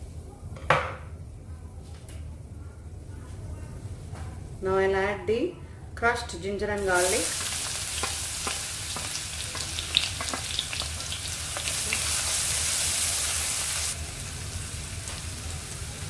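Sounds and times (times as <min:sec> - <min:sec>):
garlic sizzling in hot oil: 0:06.8 - 0:16.0.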